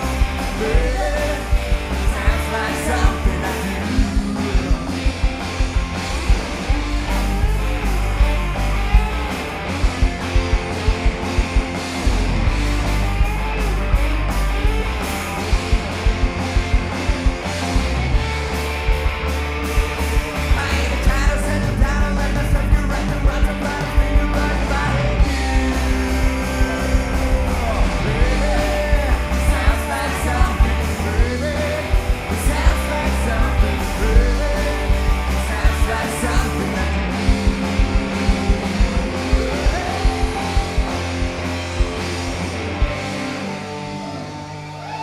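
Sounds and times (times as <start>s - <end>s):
person singing lead vocal: 0.0s - 5.6s, 20.4s - 41.4s
live rock band playing: 0.0s - 45.0s.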